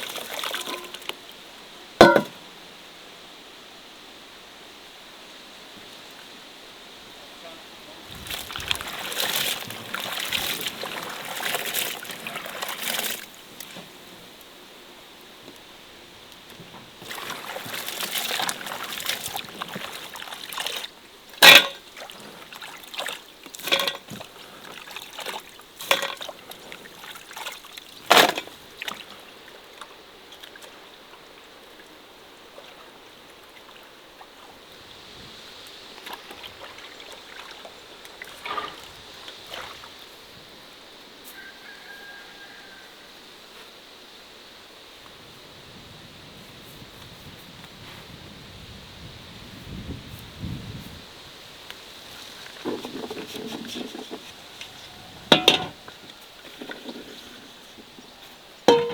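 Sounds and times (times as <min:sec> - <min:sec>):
water splashing and trickling: 0:00.0 - 0:02.4, 0:08.0 - 0:14.1, 0:16.5 - 0:40.6, 0:51.9 - 0:58.9
sharp knocks: 0:02.0 - 0:02.4, 0:58.7 - 0:58.9.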